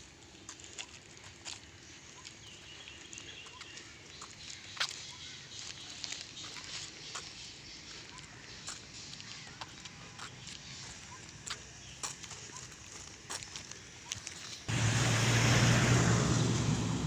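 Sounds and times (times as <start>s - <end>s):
birds chirping: 1.6s - 12.9s.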